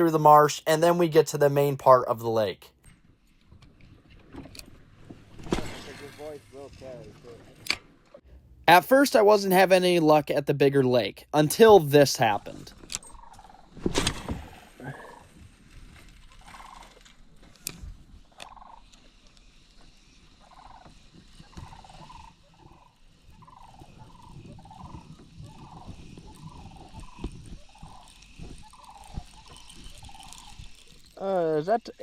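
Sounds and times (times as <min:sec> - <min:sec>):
wild animal calls: 0:14.4 - 0:15.4, 0:16.4 - 0:17.0, 0:21.5 - 0:30.6.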